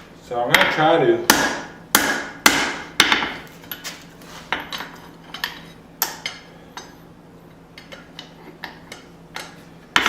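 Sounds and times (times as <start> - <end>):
hammer striking steel on anvil: 0.5 - 3.4.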